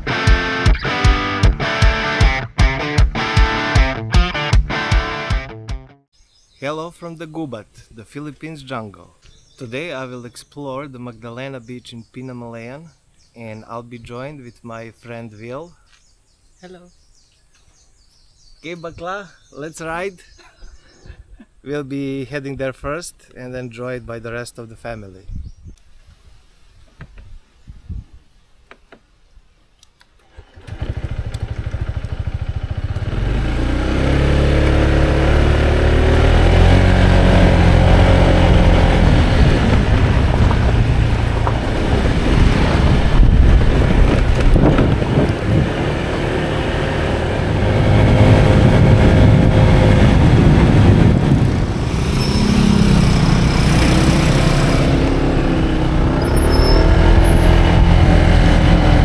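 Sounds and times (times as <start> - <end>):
motorcycle engine changing gears: 30.2 - 59.0.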